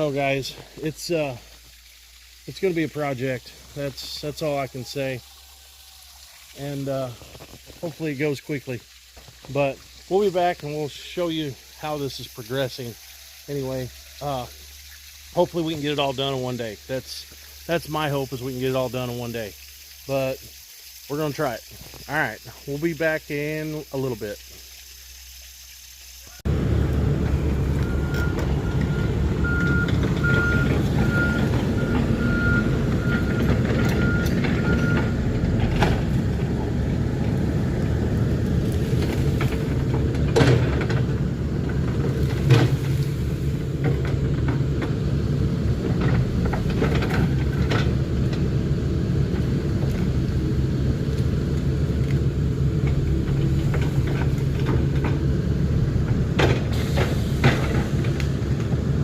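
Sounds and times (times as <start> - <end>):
diesel engine under load: 26.5 - 59.0
warning alarm beeping: 27.8 - 35.2.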